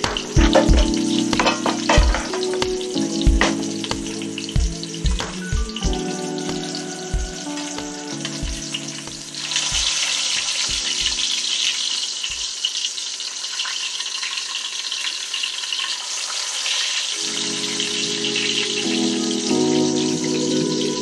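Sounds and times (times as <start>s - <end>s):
low knocks: 0.0s - 6.0s
fish sizzling in oil: 0.0s - 19.1s.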